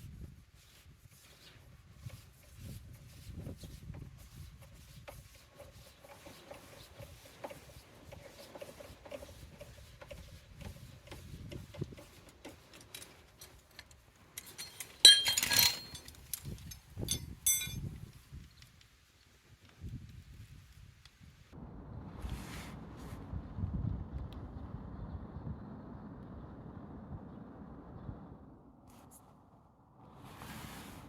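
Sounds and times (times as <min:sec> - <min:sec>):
handling and shuffling noises: 0:00.4 - 0:18.2
metal clank with ringing: 0:14.4 - 0:16.1, 0:17.1 - 0:17.8
metallic clinks: 0:14.4 - 0:17.9.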